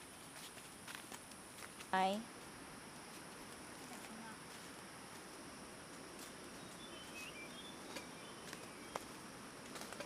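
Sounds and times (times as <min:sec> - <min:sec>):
insect drone: 0:00.0 - 0:10.0
high bird chirps: 0:06.6 - 0:09.1.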